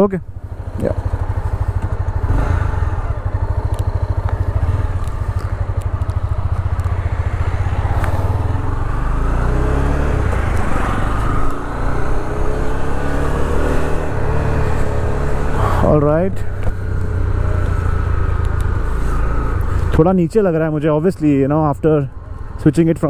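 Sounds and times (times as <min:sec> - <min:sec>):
motorcycle engine idling: 0:00.2 - 0:09.0, 0:16.0 - 0:20.1.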